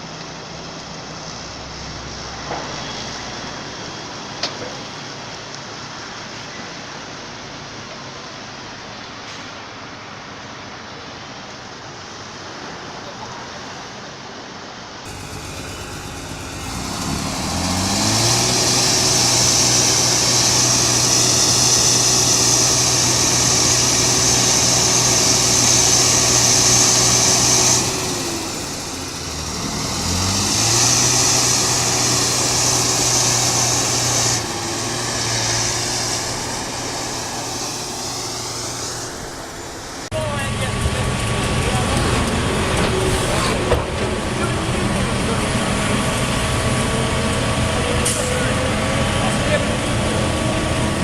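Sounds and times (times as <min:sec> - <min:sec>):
heavy vehicle engine revving: 0:15.1 - 0:51.0.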